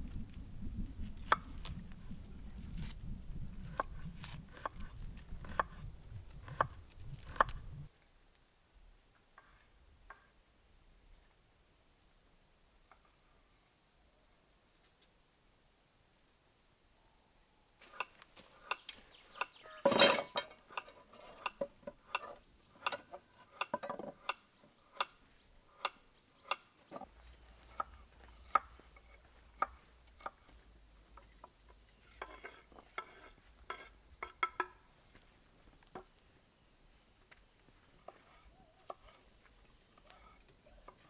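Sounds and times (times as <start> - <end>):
light knocks and clinks: 19.8 - 21.0.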